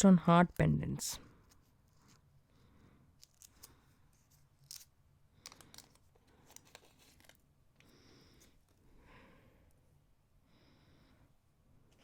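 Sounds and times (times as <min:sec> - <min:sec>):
packaging crinkling: 0:03.2 - 0:07.5.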